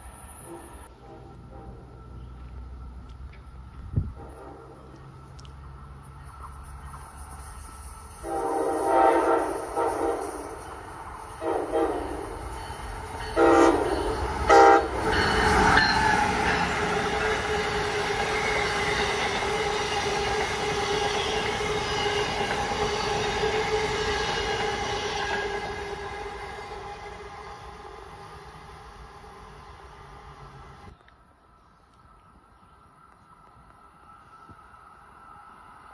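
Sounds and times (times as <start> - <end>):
train passing rumble: 0.0 - 31.0, 31.9 - 35.9
train horn blasts: 4.2 - 5.1, 8.2 - 27.9.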